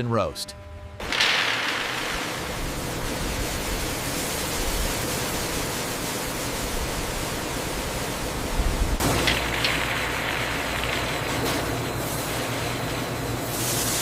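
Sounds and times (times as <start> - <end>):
steady rushing noise: 0.2 - 9.0.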